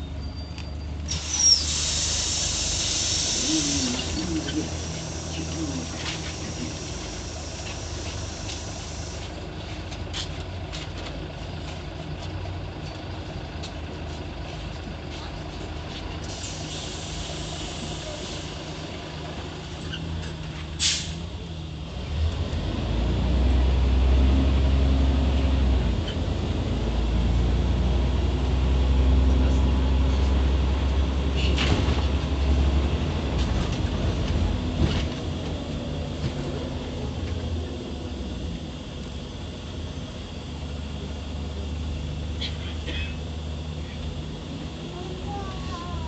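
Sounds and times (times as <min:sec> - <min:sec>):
bus engine: 0:00.0 - 0:46.0
brake air hiss: 0:01.1 - 0:09.5, 0:16.2 - 0:19.1, 0:19.7 - 0:21.4.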